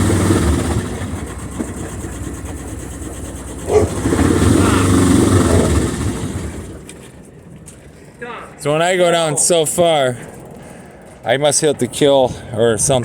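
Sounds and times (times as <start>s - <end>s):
boat engine running: 0.0s - 7.3s.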